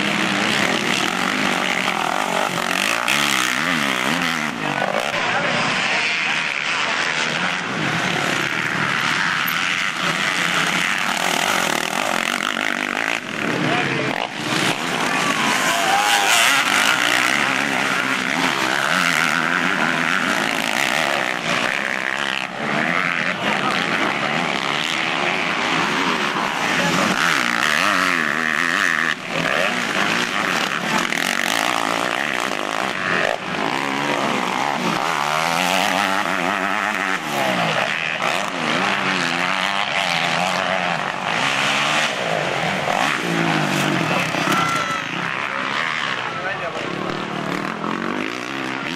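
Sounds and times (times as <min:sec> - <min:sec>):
motocross bikes revving: 0:00.0 - 0:48.9.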